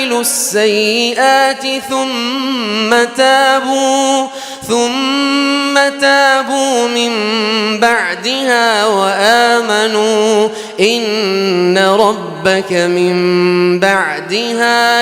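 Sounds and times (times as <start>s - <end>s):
person reciting melodically: 0.0s - 15.0s
breath: 4.3s - 4.7s, 10.5s - 10.8s.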